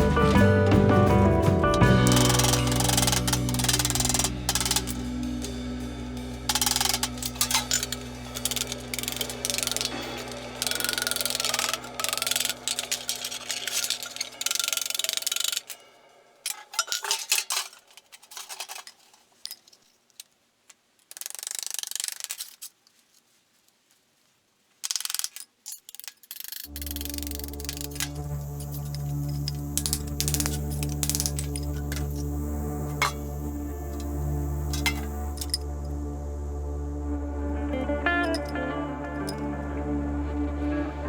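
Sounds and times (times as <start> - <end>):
background music with low tone: 0.0 - 16.5, 26.7 - 41.0
sheet metal cans scraping and clattering: 27.6 - 34.1.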